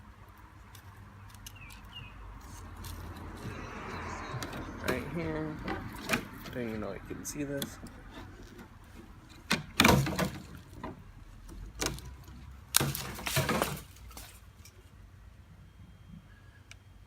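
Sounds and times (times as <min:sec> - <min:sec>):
sharp wooden cracks and snaps: 0:09.3 - 0:14.4.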